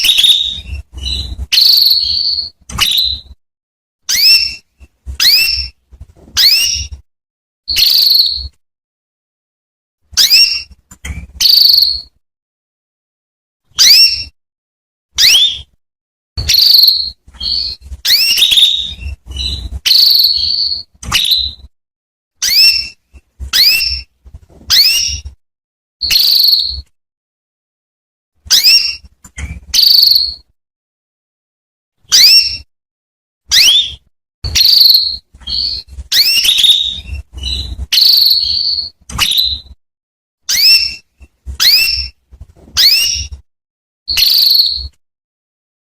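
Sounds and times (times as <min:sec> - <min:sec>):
canary chirping: 0:00.0 - 0:03.4, 0:04.0 - 0:07.0, 0:07.7 - 0:08.6, 0:10.1 - 0:12.2, 0:13.7 - 0:14.4, 0:15.2 - 0:15.8, 0:16.4 - 0:21.7, 0:22.4 - 0:25.4, 0:26.0 - 0:26.9, 0:28.4 - 0:30.5, 0:32.0 - 0:32.7, 0:33.5 - 0:39.8, 0:40.5 - 0:43.4, 0:44.1 - 0:45.0.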